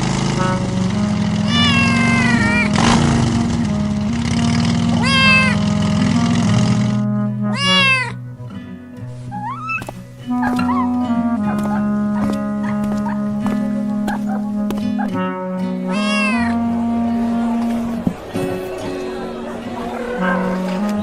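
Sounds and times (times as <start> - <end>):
background music with low notes: 0.0 - 21.0
cat meowing: 1.5 - 2.7, 4.8 - 5.7, 7.5 - 8.2, 9.3 - 13.2, 15.9 - 16.7.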